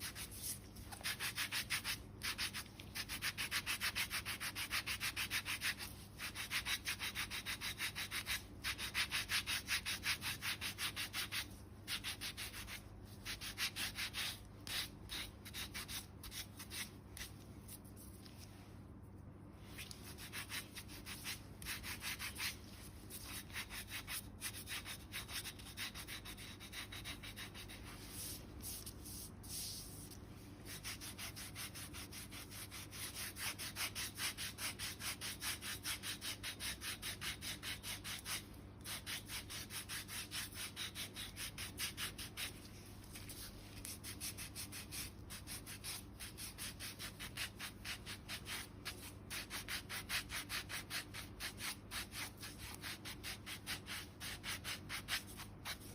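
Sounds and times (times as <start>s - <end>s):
foot file rasping on skin: 19.8s - 27.8s, 30.7s - 55.9s.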